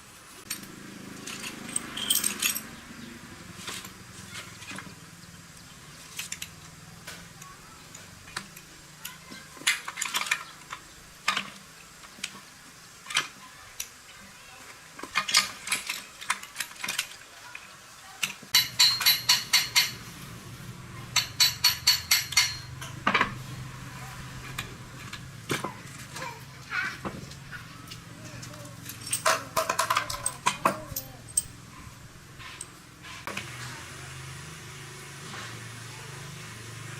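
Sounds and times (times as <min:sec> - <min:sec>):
metal tools clinking and knocking: 0:00.5 - 0:02.8, 0:18.2 - 0:20.0, 0:21.1 - 0:23.4, 0:27.3 - 0:32.8.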